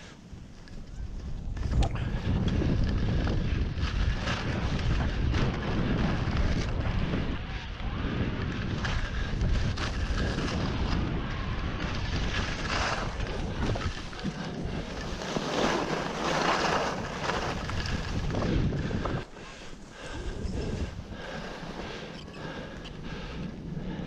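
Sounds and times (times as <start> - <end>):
wind rushing over microphone: 0.0 - 24.0
skis hissing over snow: 12.4 - 18.3.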